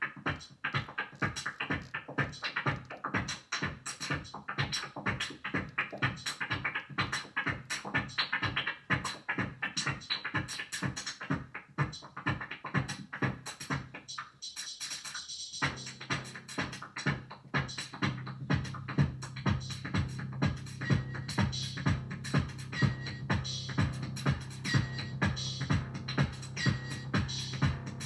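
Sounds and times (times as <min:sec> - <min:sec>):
electronic drum pattern: 0:00.0 - 0:28.0.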